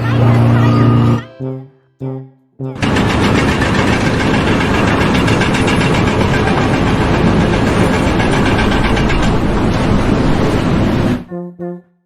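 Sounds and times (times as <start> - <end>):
pulsing machinery noise: 0.0 - 1.2, 2.8 - 11.3.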